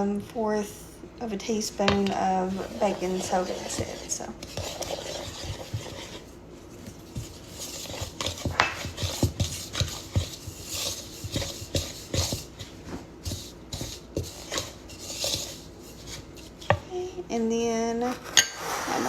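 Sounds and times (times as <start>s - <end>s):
utensil knocking in a mixing bowl: 7.1s - 15.6s.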